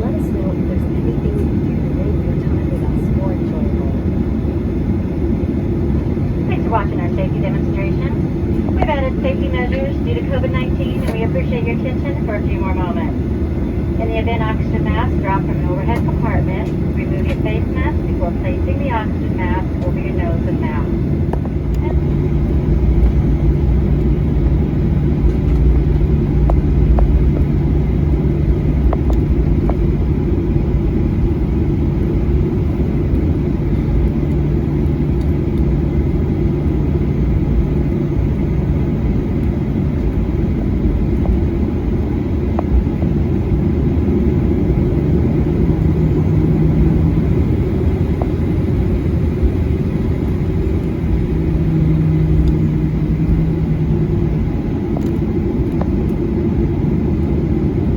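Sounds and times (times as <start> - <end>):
airliner cabin rumble: 0.0 - 57.9
low engine hum: 0.0 - 57.9.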